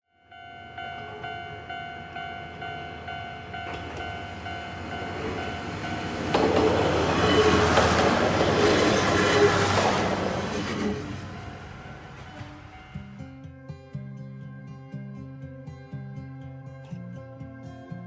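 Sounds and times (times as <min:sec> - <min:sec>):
crossing warning bell dinging: 0:00.1 - 0:13.2
diesel railcar passing: 0:00.1 - 0:13.2
train wheels on rails: 0:00.3 - 0:13.1.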